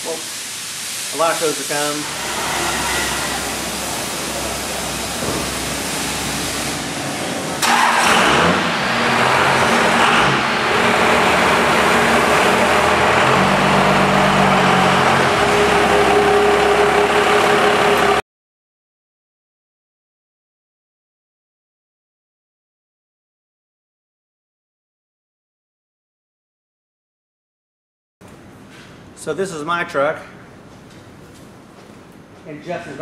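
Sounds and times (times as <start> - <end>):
diesel pickup engine running: 3.3 - 18.2.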